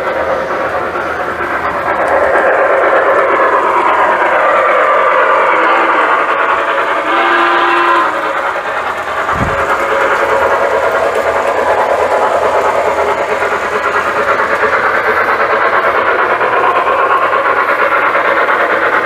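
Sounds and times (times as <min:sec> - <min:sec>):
model train clattering: 0:00.0 - 0:19.0
train whistle: 0:05.2 - 0:06.3, 0:06.9 - 0:08.4.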